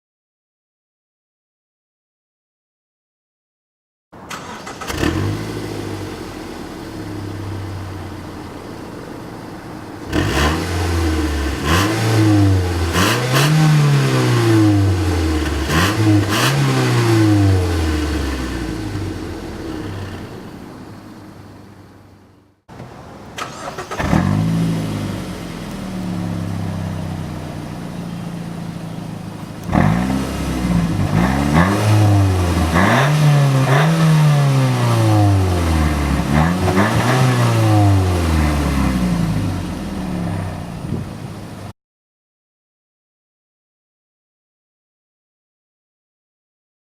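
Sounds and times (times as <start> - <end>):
car engine revving in blips: 4.3 - 22.1, 23.4 - 41.2.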